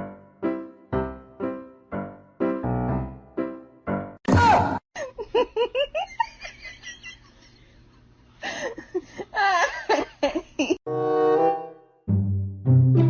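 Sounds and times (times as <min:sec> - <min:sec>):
person laughing: 0:05.0 - 0:07.8, 0:08.4 - 0:10.8.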